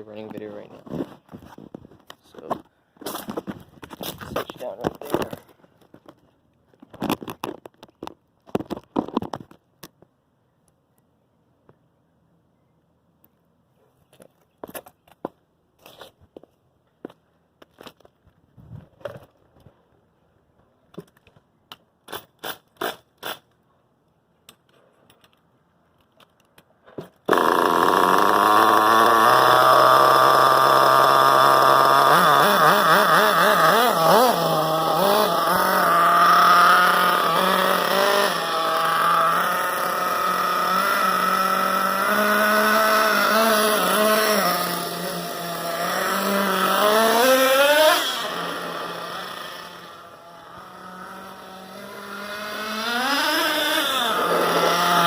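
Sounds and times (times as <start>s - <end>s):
rc truck nitro engine revving: 27.3s - 55.0s.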